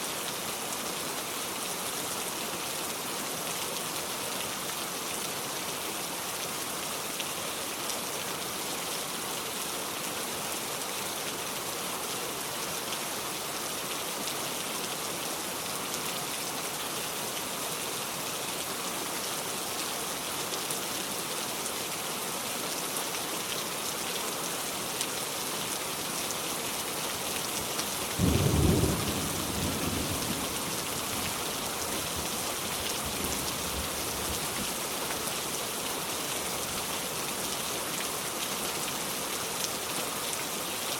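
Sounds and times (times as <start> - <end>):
heavy rain hissing: 25.5 - 37.5.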